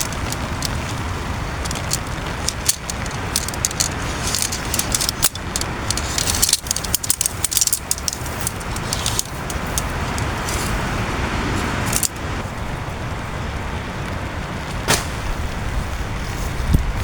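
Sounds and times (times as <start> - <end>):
strong wind: 0.0 - 17.0.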